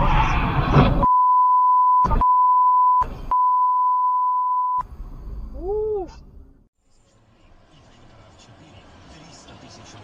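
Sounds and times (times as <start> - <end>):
censor bleep tone: 1.0 - 4.8.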